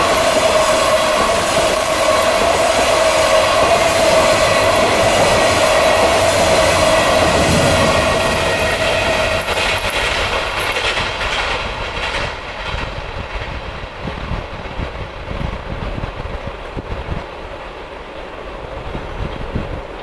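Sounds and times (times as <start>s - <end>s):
train wheels clattering over joints: 0.0s - 14.9s.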